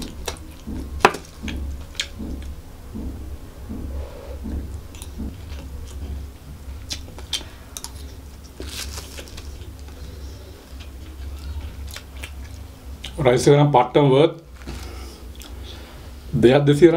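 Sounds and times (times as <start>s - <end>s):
steady low hum: 0.0s - 16.9s
close-miked chewing: 6.8s - 13.2s
wet crackly mouth clicks: 10.7s - 13.2s.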